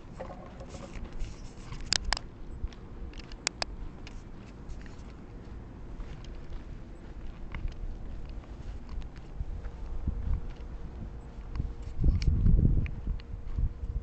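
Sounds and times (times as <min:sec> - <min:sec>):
wind rumble on microphone: 0:00.0 - 0:14.0
camera handling noise: 0:00.2 - 0:02.3, 0:03.1 - 0:05.2.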